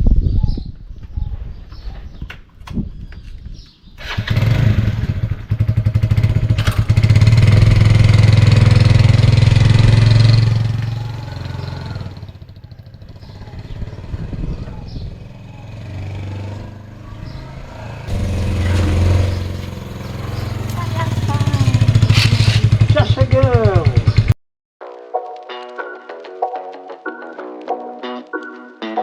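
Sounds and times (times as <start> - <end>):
vehicle engine starting and running: 4.0 - 24.4.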